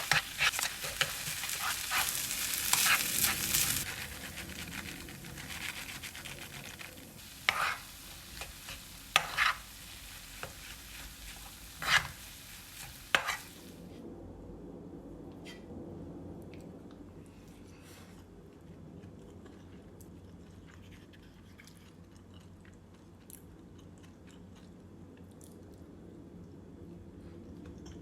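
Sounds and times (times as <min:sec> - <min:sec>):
utensil scraping a pan: 0:00.0 - 0:13.7
food sizzling in a frying pan: 0:00.0 - 0:13.8.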